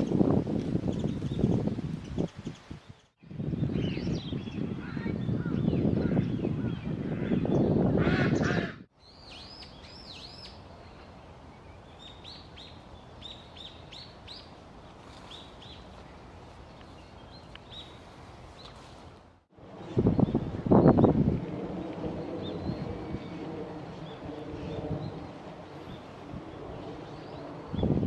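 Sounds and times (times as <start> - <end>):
steady outdoor hiss: 8.8 - 28.0
songbird chirping: 8.9 - 19.0.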